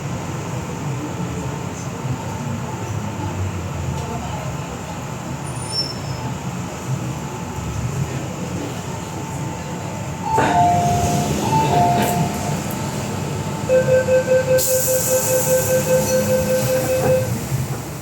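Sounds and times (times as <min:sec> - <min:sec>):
train car rumbling: 0:00.0 - 0:18.0
brake squeal: 0:05.5 - 0:06.3, 0:13.7 - 0:17.5
air hissing: 0:14.6 - 0:16.7.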